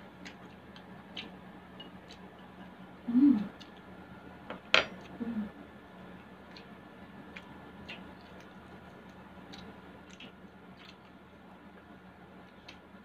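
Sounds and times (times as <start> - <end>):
low voice hum: 3.0 - 3.6, 5.1 - 5.7
wet chewing clicks: 6.3 - 11.2.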